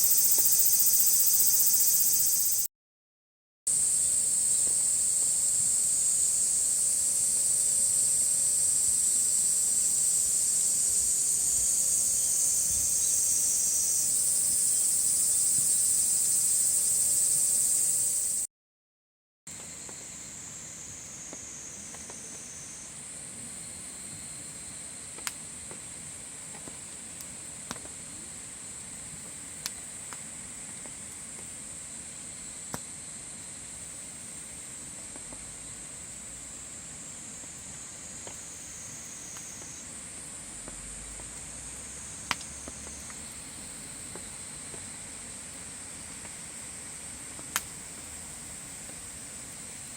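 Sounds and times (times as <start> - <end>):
insect chorus: 0.0 - 2.7, 3.7 - 18.5, 19.5 - 49.9
wood fire popping: 47.4 - 48.1.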